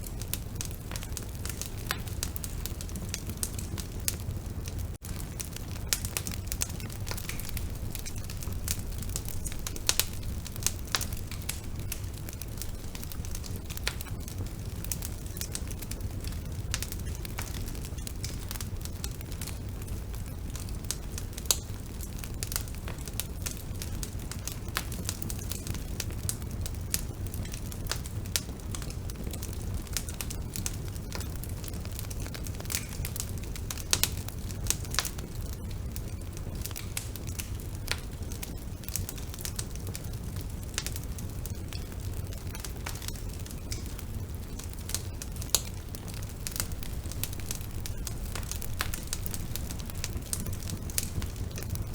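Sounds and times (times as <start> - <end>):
bonfire crackling and rumbling: 0.0 - 51.9
sharp fire pops: 0.0 - 51.9.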